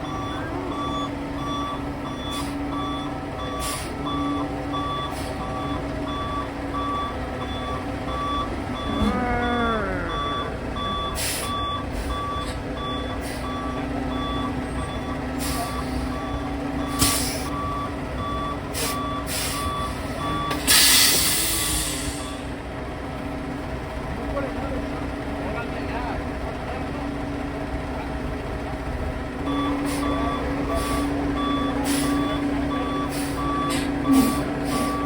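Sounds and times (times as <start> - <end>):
truck backup alarm beeping: 0.0 - 24.1, 27.2 - 35.0
truck engine running: 0.0 - 35.0
short falling whine: 8.7 - 10.9
air brakes hissing: 11.2 - 13.6, 16.9 - 17.5, 18.7 - 22.5.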